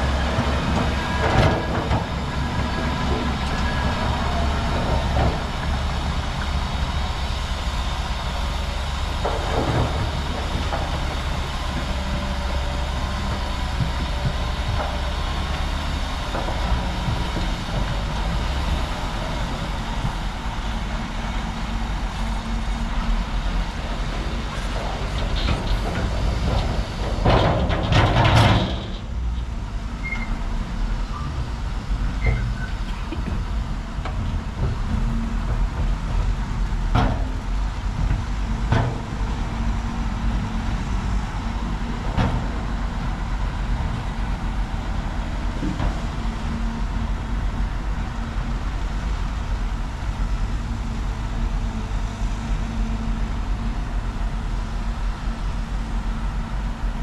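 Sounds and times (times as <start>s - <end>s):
diesel machinery rumbling: 0.0s - 57.0s.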